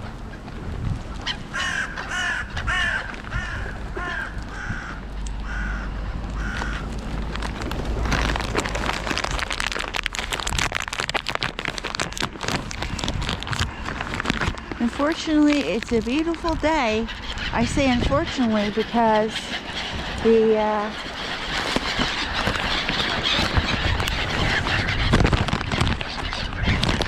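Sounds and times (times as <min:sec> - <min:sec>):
rough crackling noise with clicks: 0:00.0 - 0:17.5, 0:20.9 - 0:27.0
crows cawing: 0:01.2 - 0:07.4.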